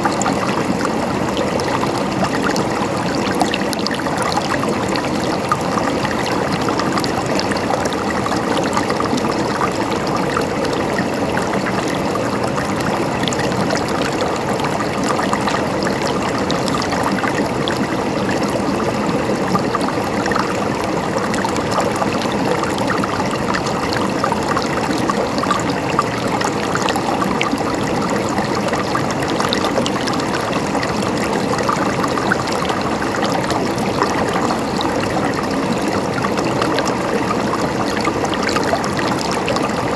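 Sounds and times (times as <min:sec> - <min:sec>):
flowing water gurgling: 0:00.0 - 0:39.9.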